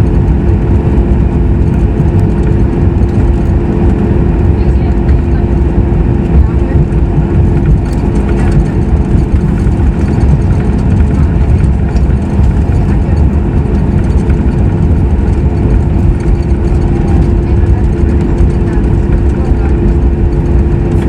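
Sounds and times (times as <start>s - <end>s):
jet engines idling hum: 0.0s - 21.0s
loud low rumble: 0.0s - 21.0s.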